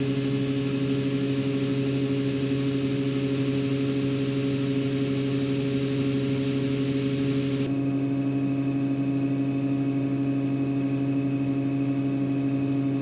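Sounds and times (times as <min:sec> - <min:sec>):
combine harvester engine hum: 0:00.0 - 0:09.7.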